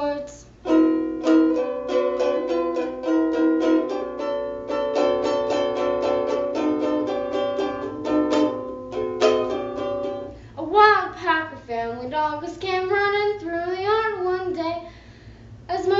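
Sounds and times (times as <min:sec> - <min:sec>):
ukulele strumming: 0:00.0 - 0:14.6.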